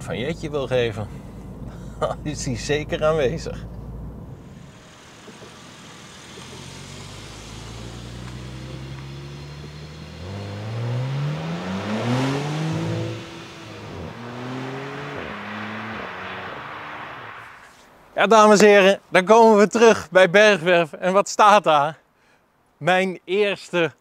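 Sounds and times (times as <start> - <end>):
car engine accelerating hard: 0.7 - 17.8.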